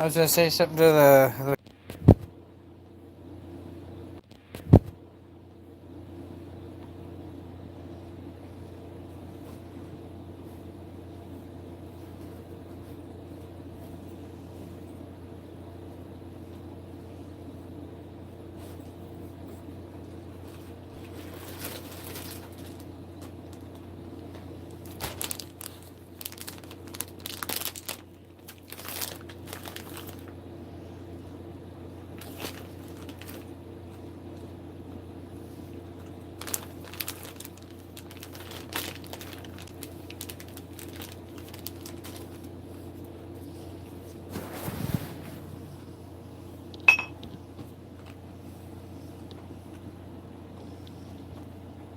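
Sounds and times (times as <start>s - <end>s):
steady low hum: 0.0s - 51.9s
packaging crinkling and rustling: 20.5s - 30.4s, 32.2s - 33.6s, 36.4s - 43.1s.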